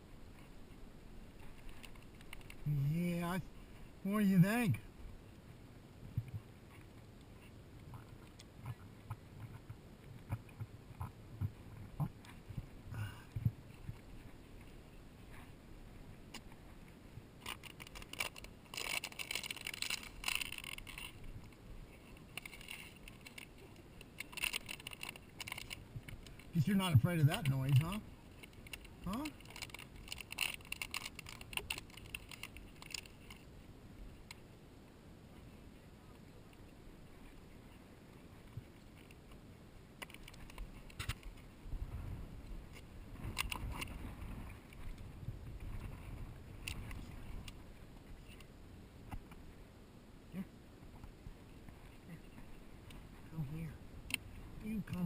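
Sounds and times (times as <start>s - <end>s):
crackling and rustling clicks: 0.3s - 3.4s, 6.0s - 34.5s, 38.4s - 41.6s, 42.4s - 49.5s
wind on microphone: 40.6s - 48.4s.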